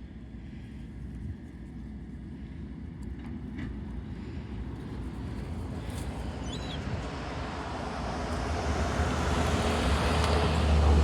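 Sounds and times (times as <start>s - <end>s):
road vehicle rumble: 2.6s - 11.0s
bird chirp: 6.4s - 6.8s.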